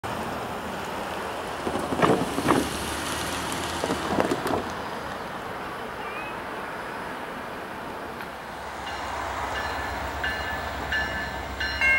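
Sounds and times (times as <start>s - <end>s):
freight train rolling: 0.0s - 11.9s
wind noise: 1.6s - 2.8s, 3.8s - 4.8s
wheels clacking on rail joint: 3.5s - 4.8s.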